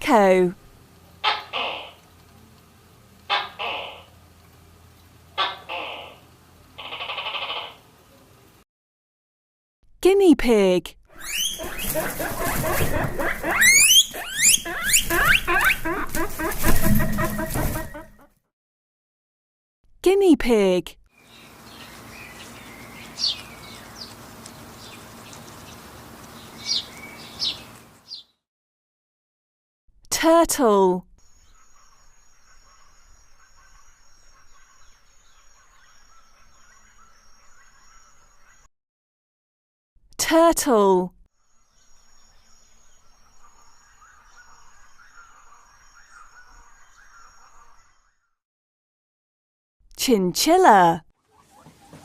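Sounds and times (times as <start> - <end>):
guinea pig squealing: 1.2 - 2.0, 3.3 - 4.1, 5.4 - 6.2, 6.8 - 7.8, 11.1 - 18.3
quick bird chirps: 11.2 - 18.2.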